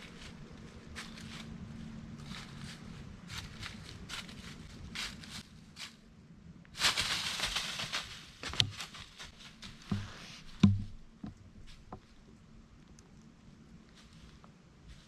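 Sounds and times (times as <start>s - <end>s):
rustle: 0.0s - 15.0s
soft thumps: 9.8s - 12.2s.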